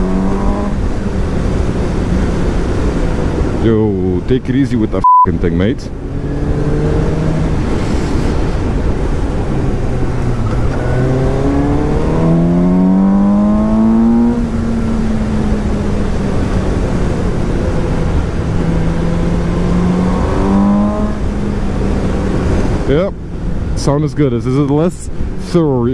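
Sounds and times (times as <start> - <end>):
motorcycle engine accelerating: 0.0 - 2.8, 6.0 - 23.0.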